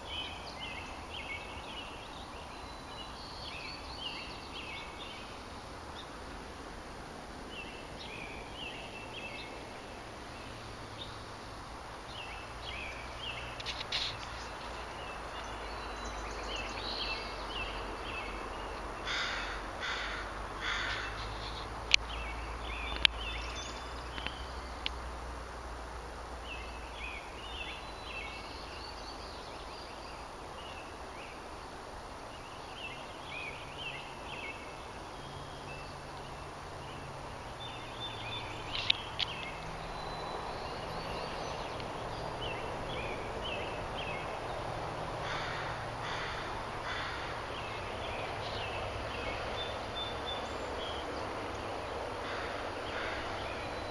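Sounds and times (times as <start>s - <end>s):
birds chirping: 0.0s - 53.9s
steady outdoor hiss: 0.0s - 53.9s
harsh bird caws: 19.0s - 21.4s, 45.2s - 47.6s, 52.2s - 53.6s.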